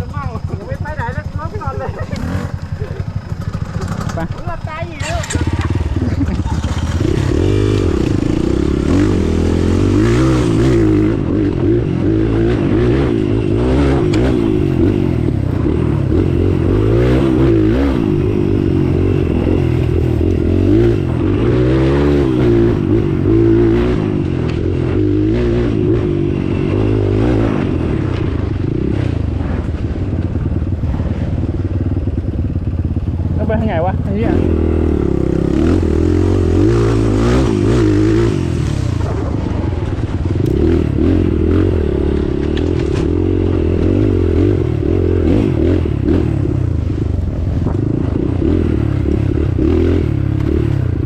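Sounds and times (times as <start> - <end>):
off-road vehicle engine revving: 0.0 - 32.2, 32.9 - 51.0
vehicle scraping and clattering: 0.4 - 8.3.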